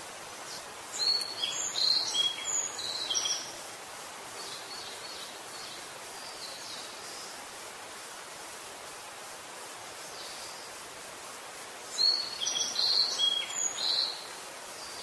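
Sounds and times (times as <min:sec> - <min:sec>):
steady outdoor hiss: 0:00.0 - 0:15.0
bird chirping: 0:00.5 - 0:03.5.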